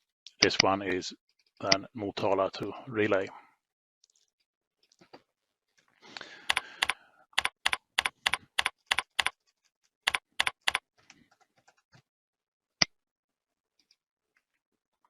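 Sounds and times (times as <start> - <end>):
typing on computer keyboard: 6.5 - 9.4, 10.1 - 12.0.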